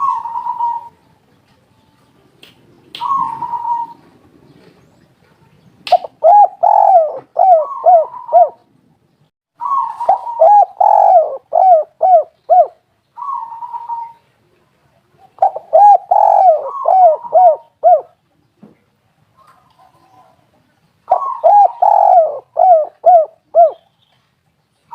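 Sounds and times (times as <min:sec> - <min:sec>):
dove cooing: 0:00.0 - 0:01.0, 0:03.0 - 0:04.8, 0:05.9 - 0:08.7, 0:09.6 - 0:14.6, 0:15.2 - 0:18.2, 0:21.1 - 0:23.9.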